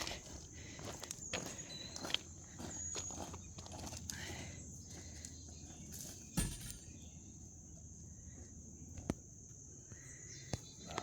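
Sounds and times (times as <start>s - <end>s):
loud thump: 6.4s - 6.9s.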